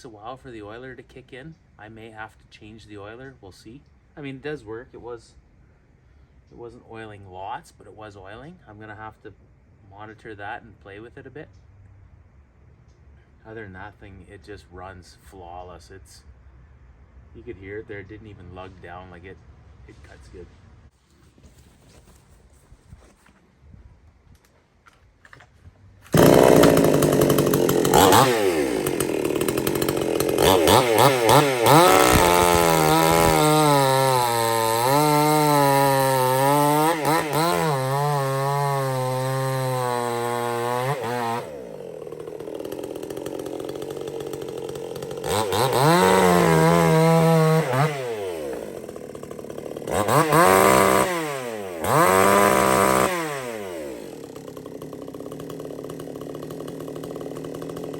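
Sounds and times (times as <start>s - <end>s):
chainsaw revving and idling: 26.0s - 57.9s.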